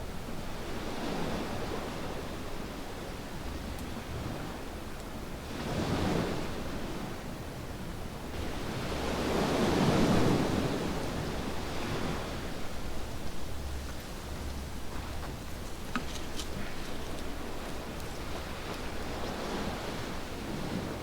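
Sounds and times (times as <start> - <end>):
small waves washing on beach: 8.2 - 21.0.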